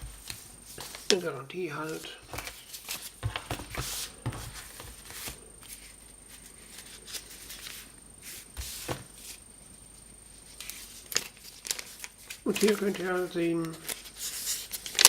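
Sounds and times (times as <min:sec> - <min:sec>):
paper and cardboard rustling: 0:01.9 - 0:09.4.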